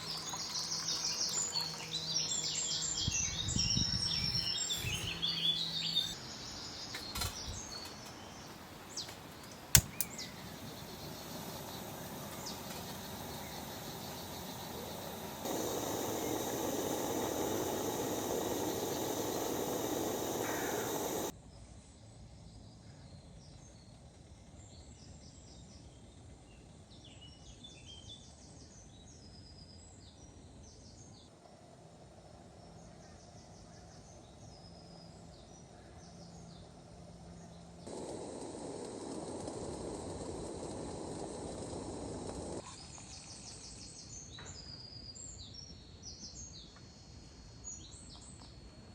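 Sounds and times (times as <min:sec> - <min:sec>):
birds chirping and singing: 0:00.0 - 0:21.3
loud steady rushing noise: 0:11.2 - 0:21.3.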